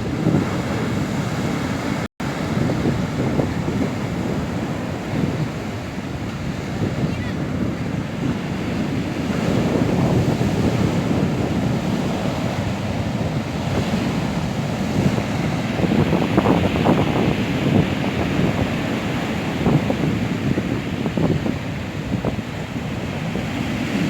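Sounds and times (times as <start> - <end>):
surf breaking on shore: 0.0 - 24.0
wind buffeting microphone: 0.0 - 24.0.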